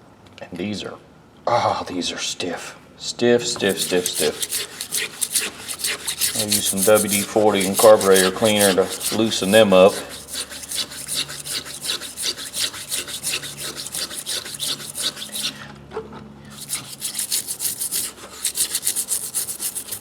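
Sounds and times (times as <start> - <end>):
scrubbing metal pliers: 3.4 - 15.6, 16.5 - 20.0.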